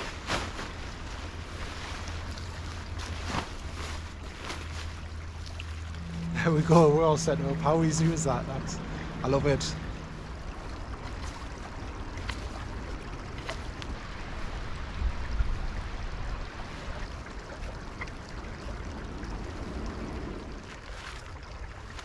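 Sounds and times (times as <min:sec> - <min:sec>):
stream running: 0:00.0 - 0:22.0
low rumble: 0:00.7 - 0:21.9.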